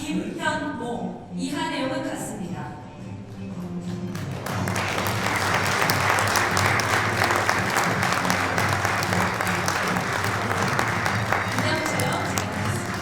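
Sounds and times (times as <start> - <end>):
soft background music: 0.0 - 13.0
audience applauding: 4.2 - 13.0.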